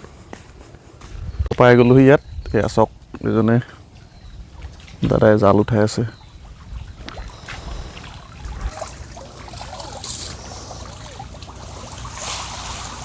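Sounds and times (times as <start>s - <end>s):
water splashing off a net: 7.0s - 13.0s.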